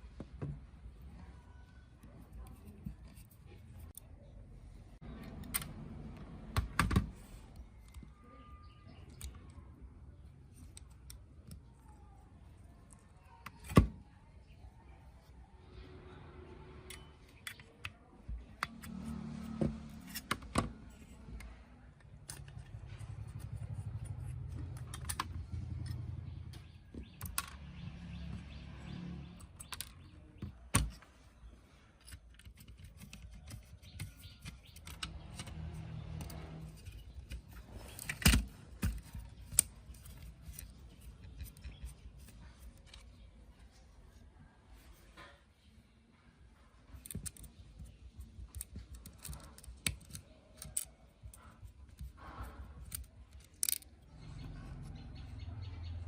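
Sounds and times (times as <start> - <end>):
small parts clicking and clinking: 32.0 - 43.3, 46.9 - 54.5.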